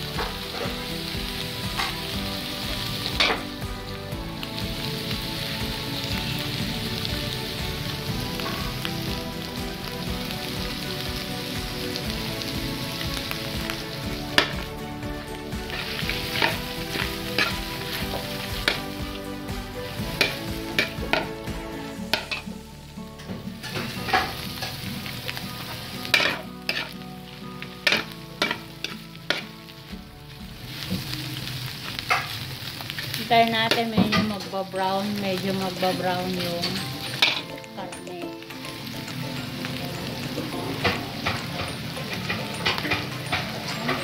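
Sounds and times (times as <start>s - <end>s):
meat frying in a wok: 0.0s - 44.0s
metal ladle scraping a wok: 15.6s - 19.0s, 19.9s - 22.7s, 23.6s - 27.0s, 27.6s - 29.7s.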